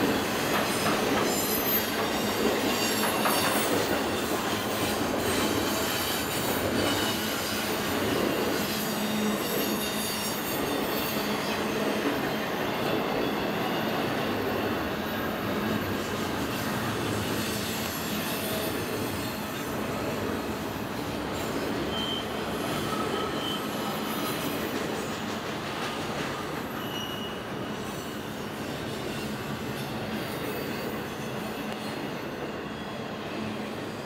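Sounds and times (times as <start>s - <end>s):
train rumbling and rattling on rails: 0.0s - 34.0s
high-pitched wheel squeals: 8.4s - 15.2s, 21.8s - 24.6s, 26.6s - 28.4s.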